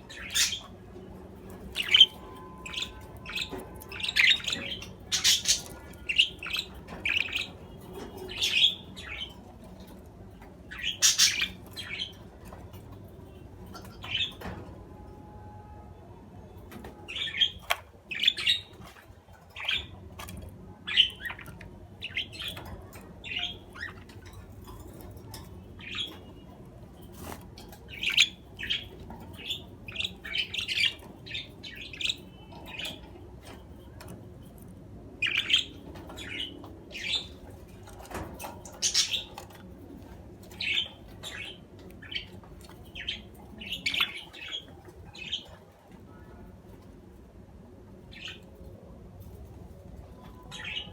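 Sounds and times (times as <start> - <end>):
budgerigars chirping: 0.0 - 0.8, 1.6 - 9.5, 10.7 - 12.3, 17.1 - 20.0, 27.9 - 33.1, 35.2 - 37.4, 38.7 - 39.6, 40.4 - 45.6.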